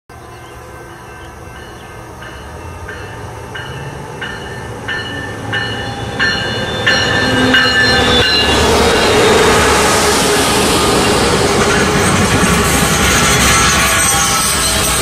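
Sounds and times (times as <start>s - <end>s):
locomotive bell ringing: 0.1s - 9.6s, 10.4s - 15.0s
rush of train noise: 0.1s - 15.0s.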